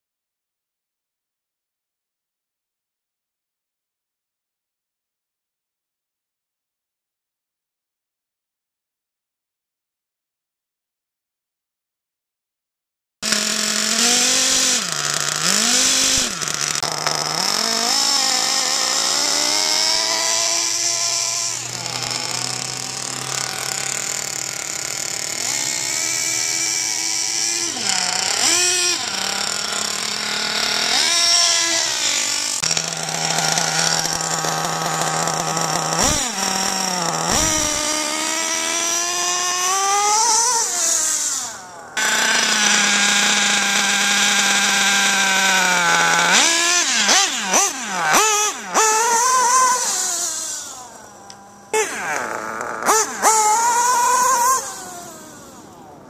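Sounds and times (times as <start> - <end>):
model engine revving: 13.2 - 56.0.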